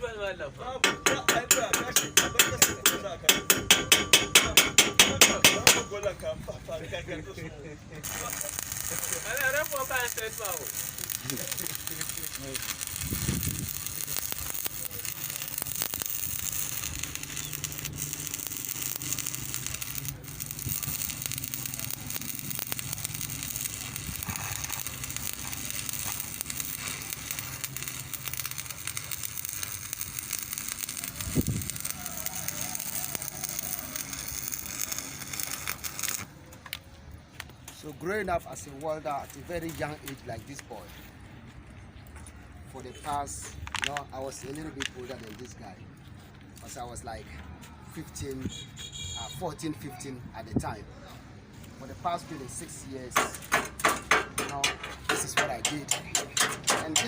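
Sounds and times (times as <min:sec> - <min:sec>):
hammer striking metal: 0:00.8 - 0:06.0, 0:53.2 - 0:57.0
welding arc crackling and sizzling: 0:08.0 - 0:36.3, 0:37.8 - 0:40.9, 0:51.8 - 0:57.0.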